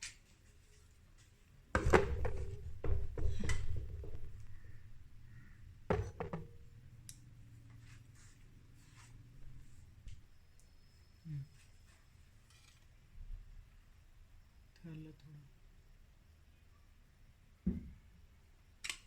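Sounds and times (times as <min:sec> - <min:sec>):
sharp knocks: 0:01.8 - 0:06.7.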